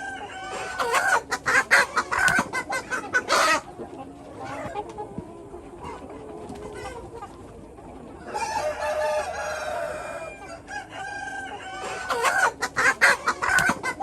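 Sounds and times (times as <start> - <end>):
rooster crowing: 0.0 - 3.6, 8.2 - 14.0
chickens clucking and cackling: 0.0 - 14.0.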